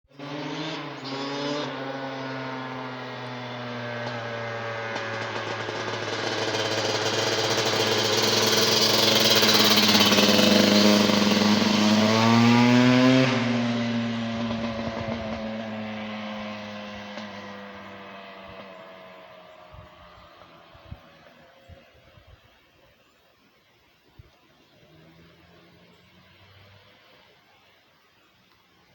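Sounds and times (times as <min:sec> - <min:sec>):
dirt bike engine revving: 0:00.1 - 0:21.8.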